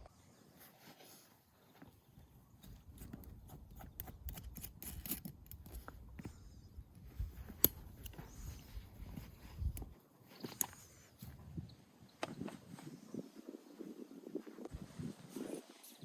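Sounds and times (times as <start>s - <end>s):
camping gear clicking and knocking: 2.9s - 6.4s, 7.3s - 10.8s.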